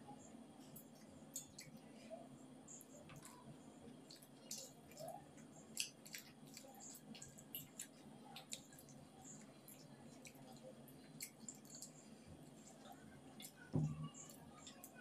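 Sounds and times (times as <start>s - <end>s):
person chewing: 5.7s - 13.6s.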